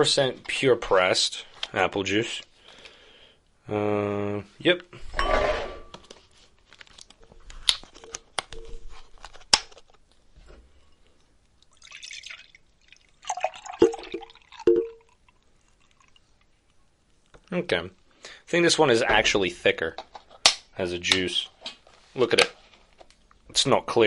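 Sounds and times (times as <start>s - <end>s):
juice pouring into a cup: 11.6s - 16.8s
bottle and cup clicking: 13.8s - 15.1s.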